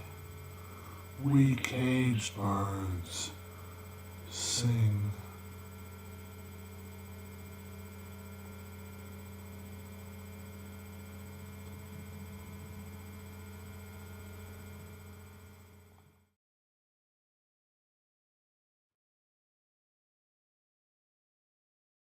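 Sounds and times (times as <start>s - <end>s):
low electrical hum: 0.0s - 16.4s.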